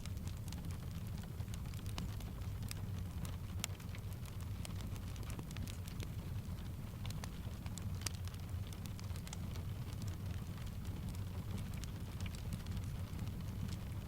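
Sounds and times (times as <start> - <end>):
steady rain: 0.0 - 14.0
wood fire crackling: 0.0 - 14.0.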